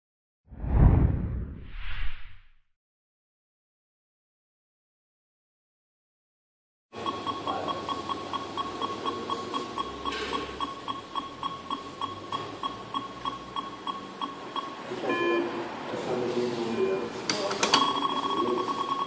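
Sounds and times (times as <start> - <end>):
multi-tone beep: 7.0 - 15.5, 17.7 - 19.0
short high beeps: 17.8 - 19.0.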